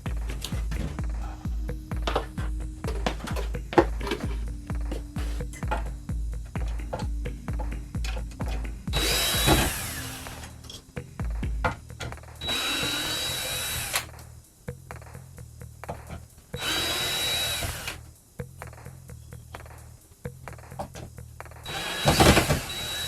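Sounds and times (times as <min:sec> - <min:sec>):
background music: 0:00.0 - 0:23.0
power drill whining: 0:08.9 - 0:10.5, 0:12.4 - 0:14.1, 0:16.6 - 0:18.0, 0:21.7 - 0:23.0.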